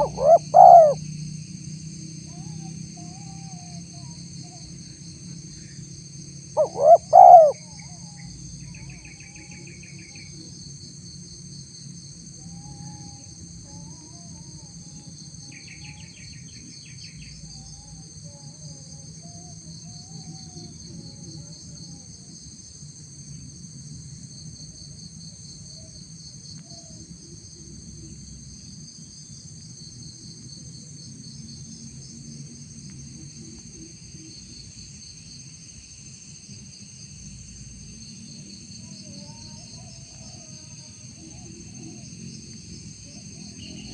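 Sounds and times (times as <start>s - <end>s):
dove cooing: 0.0s - 1.0s, 6.6s - 8.0s
small birds chirping: 0.0s - 1.0s, 6.6s - 7.8s
insects chirring: 0.0s - 43.9s.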